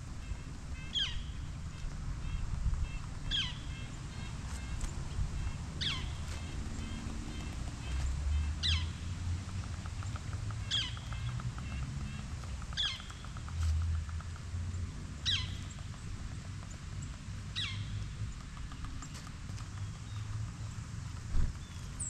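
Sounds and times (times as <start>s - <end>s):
steady low rumble: 0.0s - 22.0s
bird calling with falling pitch: 2.2s - 9.0s
faint ticks: 9.5s - 14.8s.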